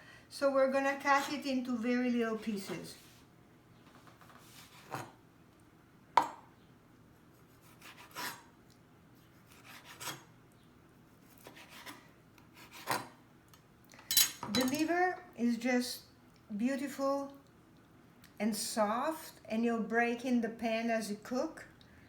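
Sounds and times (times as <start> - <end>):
knife cutting on cutting board: 4.2 - 5.2, 7.4 - 8.5, 9.3 - 10.3, 11.2 - 12.0, 12.6 - 13.1.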